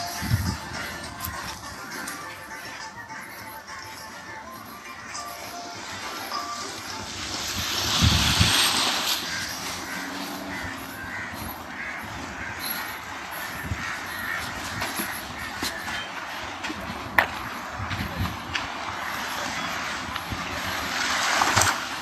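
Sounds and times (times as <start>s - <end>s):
birds calling: 0.0s - 22.0s
waves washing on beach: 5.1s - 22.0s.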